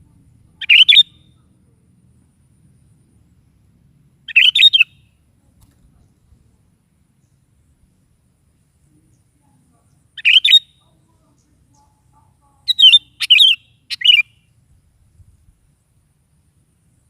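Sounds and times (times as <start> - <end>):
bird singing chirpy notes: 0.5 - 1.5, 3.1 - 5.2, 8.7 - 14.9.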